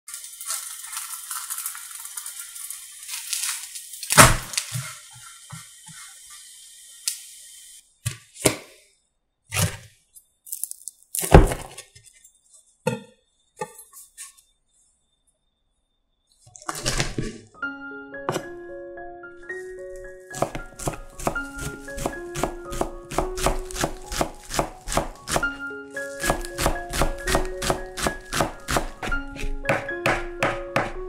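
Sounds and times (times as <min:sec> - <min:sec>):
pancake sizzling in a frying pan: 0:00.1 - 0:07.8
knife cutting on wooden board: 0:20.3 - 0:30.9
spatula knocking: 0:20.3 - 0:31.0.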